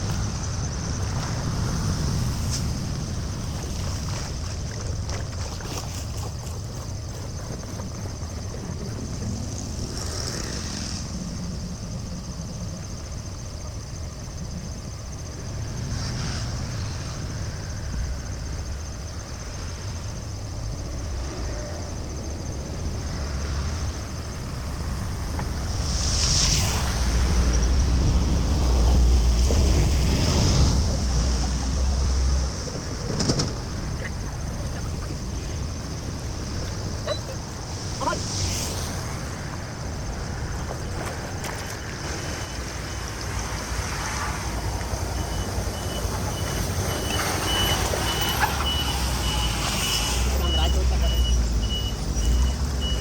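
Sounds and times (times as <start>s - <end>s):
floodwater rushing: 0.0s - 10.0s, 22.0s - 53.0s
wind rumbling on microphone: 0.0s - 53.0s.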